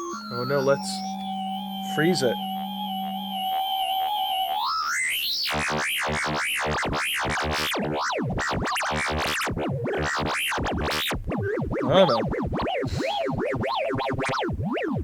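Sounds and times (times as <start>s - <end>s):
synthesizer tone sweeping in pitch: 0.0s - 6.7s, 11.3s - 15.0s.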